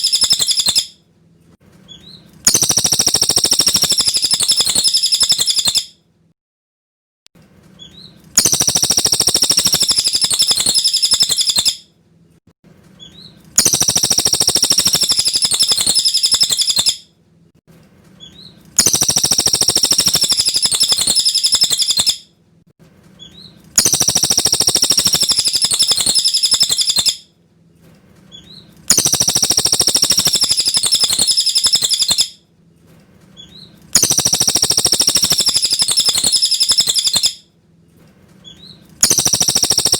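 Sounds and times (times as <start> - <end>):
bird chattering calls: 0.0 - 0.9, 2.5 - 5.8, 8.4 - 11.8, 13.6 - 17.0, 18.8 - 22.2, 23.8 - 27.2, 28.9 - 32.3, 34.0 - 37.4, 39.0 - 39.9
faint bird chirps: 0.0 - 1.0, 1.9 - 5.9, 7.8 - 11.8, 13.0 - 17.0, 18.2 - 22.2, 23.2 - 27.2, 28.3 - 32.3, 33.4 - 37.4, 38.4 - 39.9.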